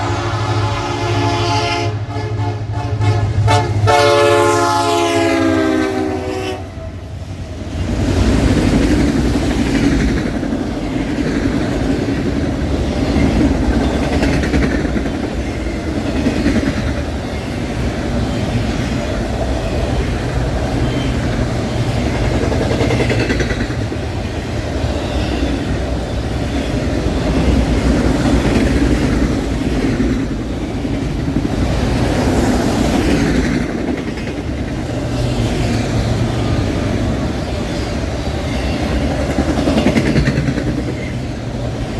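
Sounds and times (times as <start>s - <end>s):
diesel locomotive engine rumble: 0.0s - 41.9s
steel wheels on rails: 6.8s - 41.9s.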